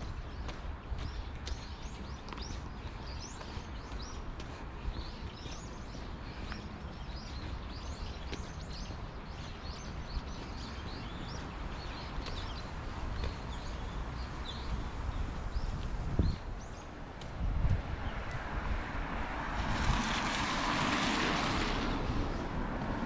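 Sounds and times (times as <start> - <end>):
small birds chirping rapidly: 0.0 - 17.2.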